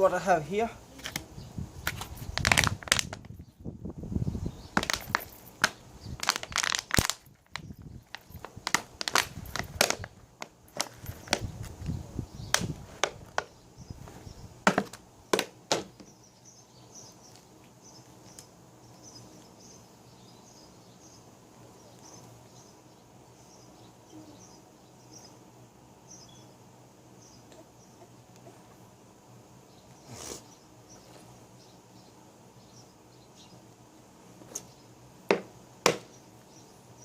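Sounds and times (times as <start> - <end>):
sharp knocks: 14.7 - 16.1, 35.3 - 36.1
faint high chirping: 16.0 - 25.4.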